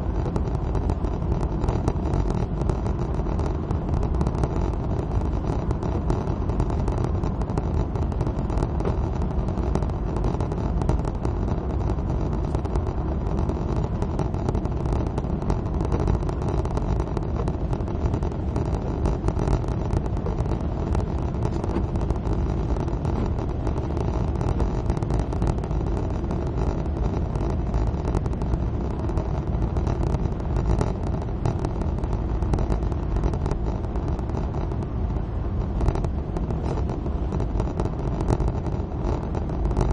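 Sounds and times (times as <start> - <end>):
car engine at speed: 0.0 - 39.9
tyres on a wet road: 12.2 - 39.8.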